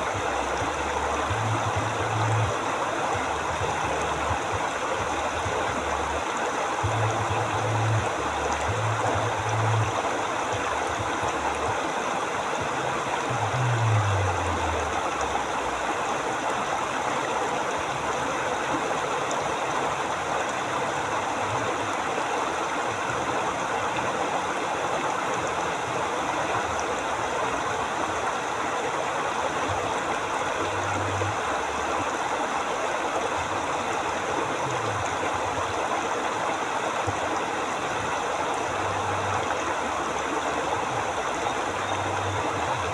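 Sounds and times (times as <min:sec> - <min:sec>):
river water flowing over rocks: 0:00.0 - 0:42.9
faint low rumble: 0:06.8 - 0:11.8, 0:12.6 - 0:15.8.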